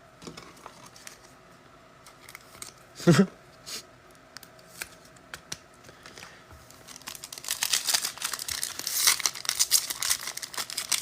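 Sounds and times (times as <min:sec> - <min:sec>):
foil wrapper tearing and crinkling: 0:06.8 - 0:11.0.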